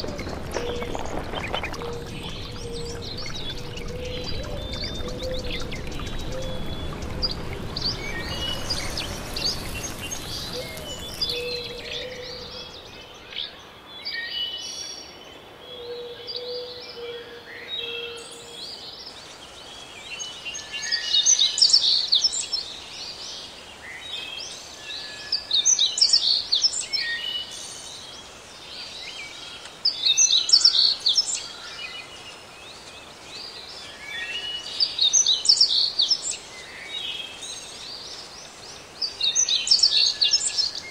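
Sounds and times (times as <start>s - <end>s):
flowing water rushing: 0.0s - 13.3s
songbirds chirping: 0.0s - 40.9s.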